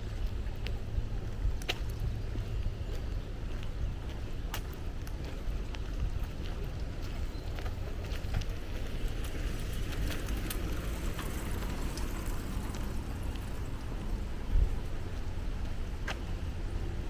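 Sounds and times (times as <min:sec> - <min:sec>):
steady low rumble: 0:00.0 - 0:17.0
small clicks and ticks: 0:07.6 - 0:13.8.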